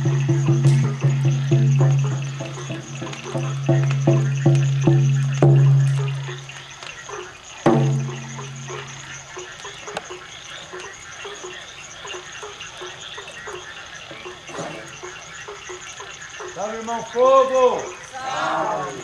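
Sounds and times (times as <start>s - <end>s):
frogs croaking: 0.0s - 19.0s
deep drum strike: 7.6s - 8.7s.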